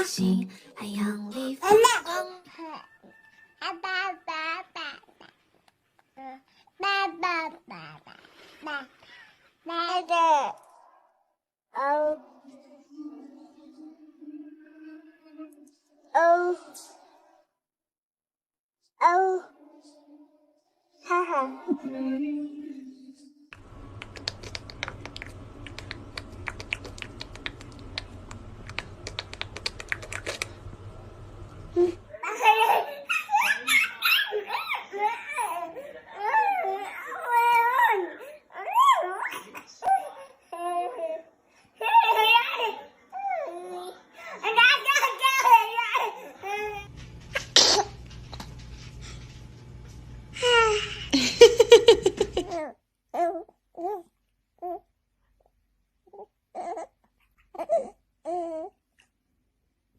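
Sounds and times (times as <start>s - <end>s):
faint low hum: 21.8s - 33.3s, 41.8s - 52.6s
rapid light clicks and taps: 23.6s - 31.6s
low hum: 23.6s - 32.2s
baby laughing: 32.1s - 41.2s, 50.4s - 52.7s.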